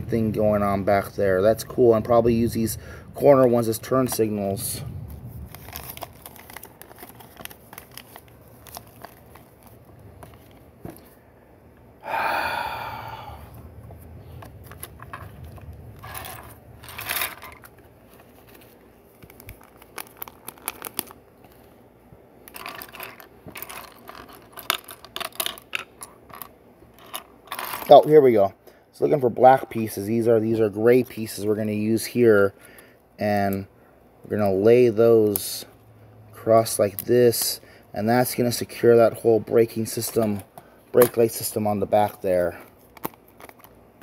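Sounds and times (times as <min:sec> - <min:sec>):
plastic bag crinkling: 0:05.2 - 0:11.2, 0:14.6 - 0:21.8
plastic pieces clicking and clattering: 0:22.4 - 0:27.9.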